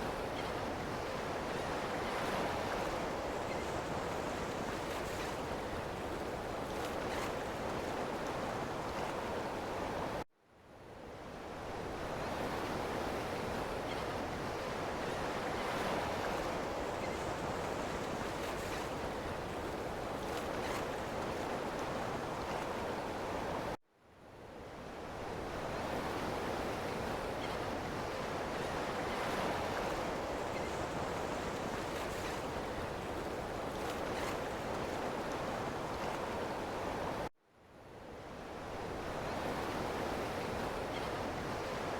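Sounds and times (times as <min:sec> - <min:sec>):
ocean waves washing on shore: 0:24.9 - 0:37.3, 0:38.1 - 0:41.9.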